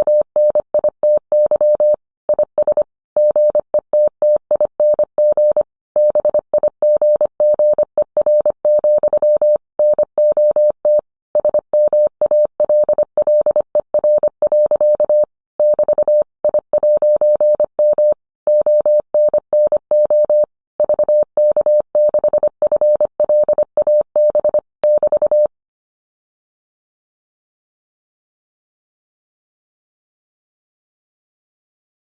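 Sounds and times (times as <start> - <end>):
morse code beeps: 0.1 - 25.5.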